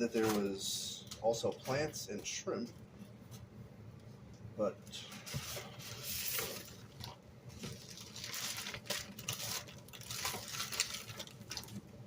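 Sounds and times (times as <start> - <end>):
packaging rustling and crinkling: 0.0 - 0.7, 5.2 - 12.0.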